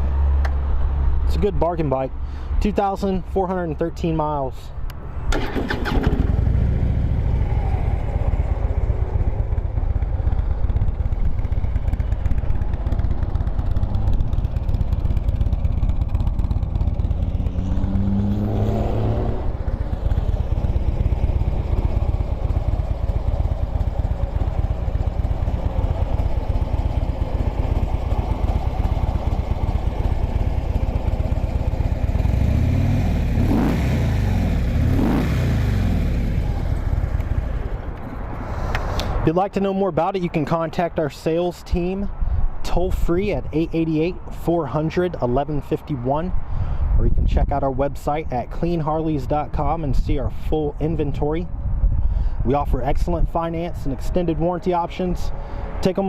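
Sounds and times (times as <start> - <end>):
motorcycle engine idling and revving: 4.9 - 39.2.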